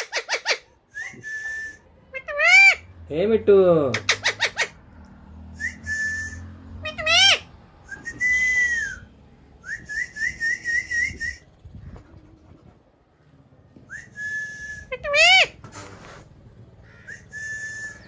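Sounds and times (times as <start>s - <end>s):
buzzy parrot call: 0.0s - 0.7s, 2.1s - 2.8s, 3.9s - 4.8s, 6.8s - 7.5s, 14.9s - 15.6s
whistling: 0.9s - 1.9s, 5.5s - 6.7s, 7.8s - 11.5s, 13.9s - 14.9s, 17.0s - 18.0s.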